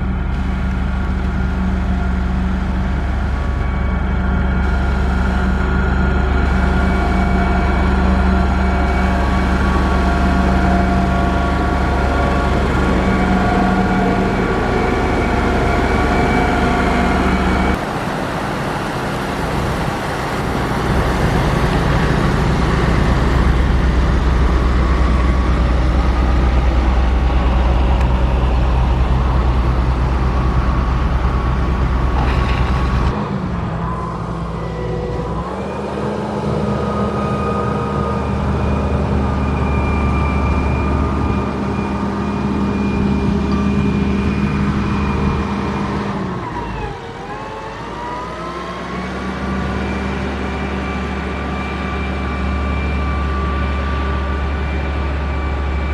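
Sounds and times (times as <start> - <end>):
heavy machinery diesel engine: 0.0 - 55.9.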